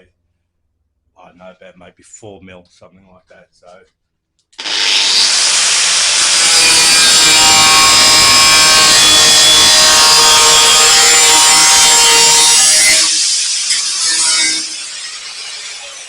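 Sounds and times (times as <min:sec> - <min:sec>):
angle grinder cutting steel: 0:04.6 - 0:16.0.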